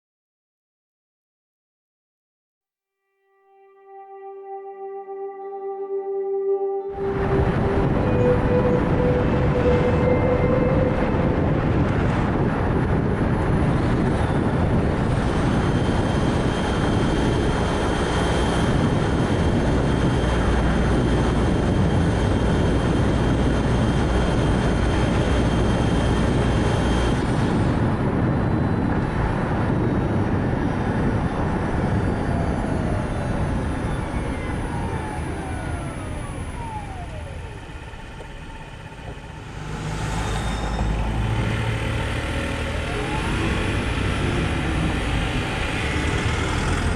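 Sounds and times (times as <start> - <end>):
faint high whine: 3.2 - 27.3, 33.8 - 45.0
car road and wind noise: 6.9 - 46.9.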